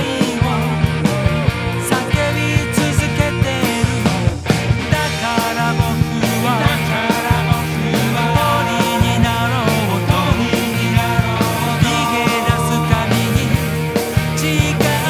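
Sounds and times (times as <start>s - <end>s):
bass notes: 0.0s - 15.0s
bending lead melody: 0.0s - 15.0s
drum beat: 0.0s - 15.0s
electric guitar: 0.0s - 15.0s.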